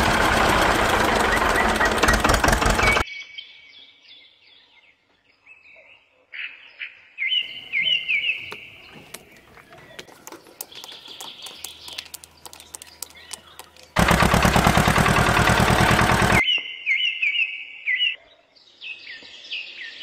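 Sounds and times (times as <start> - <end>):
loud motor noise: 0.0 - 3.0, 13.6 - 16.4
small birds chirping: 0.3 - 14.0.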